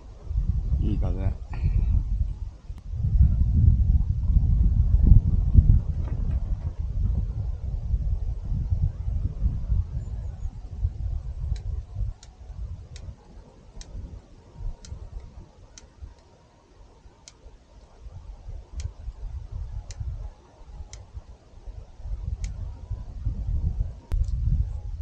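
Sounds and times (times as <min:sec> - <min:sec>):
wind on microphone: 0:00.0 - 0:25.0
sharp light ticks: 0:11.5 - 0:14.0, 0:14.6 - 0:16.4, 0:17.1 - 0:18.0, 0:18.6 - 0:19.2, 0:19.8 - 0:21.4, 0:22.3 - 0:22.7, 0:24.1 - 0:24.4.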